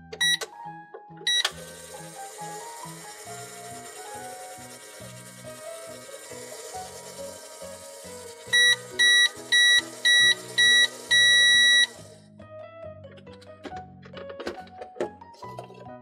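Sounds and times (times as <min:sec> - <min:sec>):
background music: 0:00.0 - 0:16.0
electronic beeps: 0:00.2 - 0:00.5, 0:01.3 - 0:01.5, 0:08.5 - 0:12.0.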